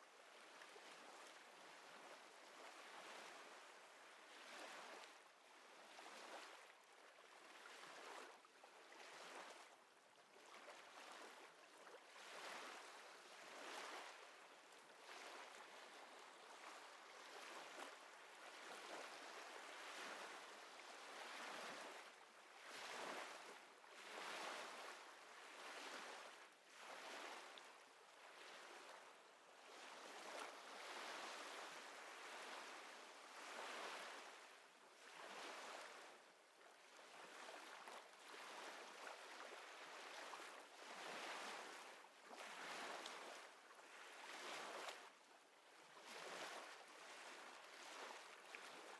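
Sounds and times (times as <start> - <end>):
small waves lapping: 10.4 - 48.9.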